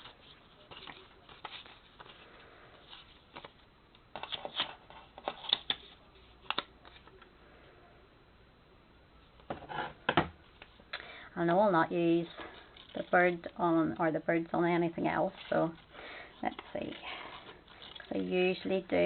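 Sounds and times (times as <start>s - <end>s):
paper rustling and tapping: 2.9s - 7.3s.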